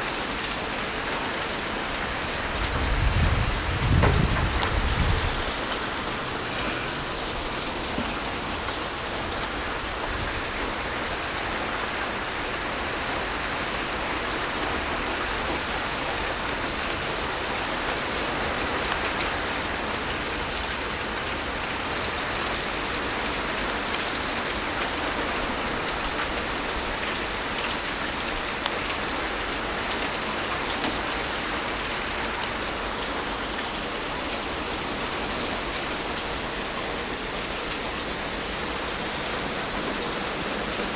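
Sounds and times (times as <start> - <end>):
hard rain pouring: 0.0 - 40.9.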